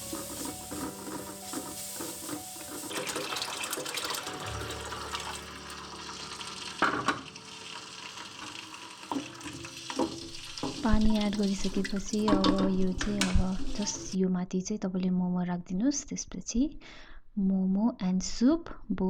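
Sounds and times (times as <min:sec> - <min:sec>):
water pouring into a pot: 0:00.0 - 0:14.2.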